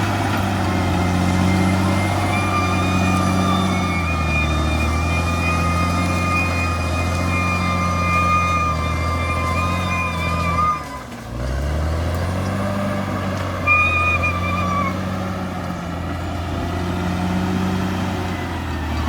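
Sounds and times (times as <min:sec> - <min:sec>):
bulldozer diesel engine: 0:00.0 - 0:19.0
high wavering squeals: 0:00.8 - 0:11.1, 0:13.6 - 0:15.2.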